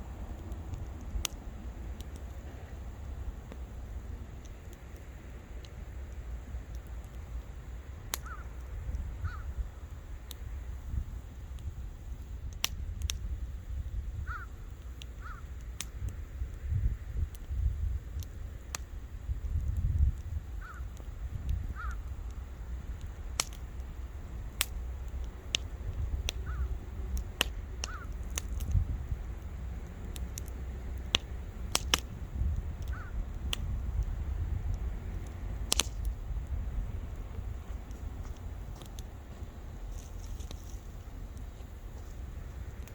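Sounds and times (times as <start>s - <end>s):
campfire crackling and popping: 0.0s - 42.9s
low rumble of burning: 0.0s - 42.9s
bird calling: 8.2s - 8.6s, 9.2s - 9.5s, 14.3s - 14.6s, 15.2s - 15.5s, 20.6s - 20.9s, 21.7s - 22.1s, 26.4s - 26.8s, 27.8s - 28.2s, 32.9s - 33.2s.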